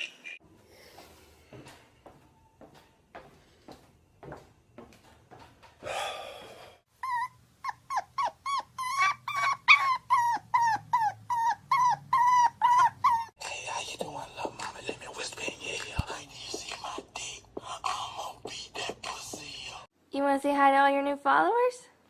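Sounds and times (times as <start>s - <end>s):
dog yipping: 7.0s - 13.4s.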